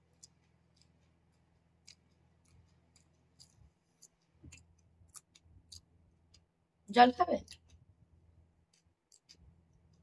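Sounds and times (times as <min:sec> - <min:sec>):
faint chewing clicks: 0:00.0 - 0:06.6, 0:07.4 - 0:10.0
low steady hum: 0:00.0 - 0:10.0.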